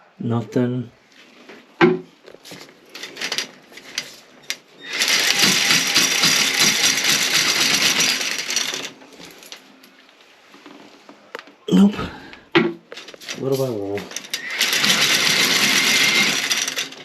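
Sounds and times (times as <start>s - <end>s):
auger cable spinning and rattling: 2.3s - 9.8s, 12.9s - 17.0s.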